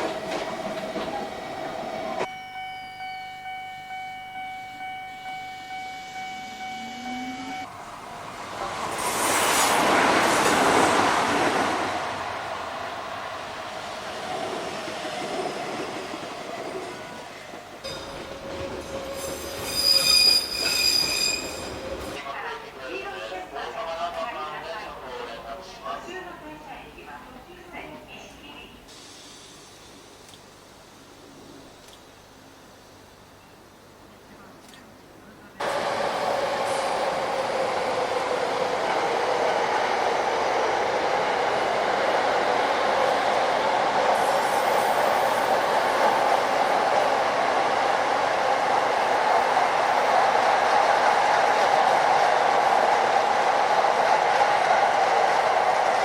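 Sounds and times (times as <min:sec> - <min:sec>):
electric train running on rails: 0:00.0 - 0:25.7, 0:35.6 - 0:56.0
steel wheels squealing on track: 0:18.8 - 0:22.2.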